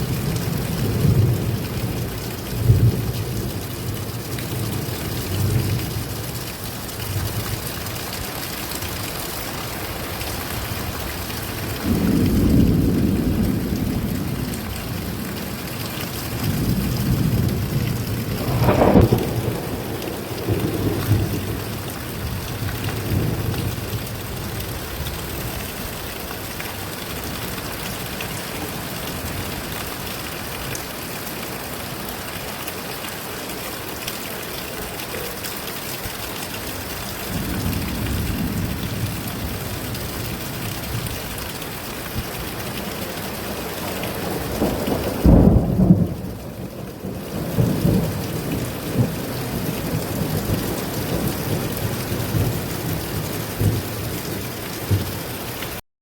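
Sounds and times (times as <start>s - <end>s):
steady rain falling: 0.0s - 55.8s
rolling thunder: 11.6s - 26.0s, 37.2s - 41.3s, 43.4s - 55.2s.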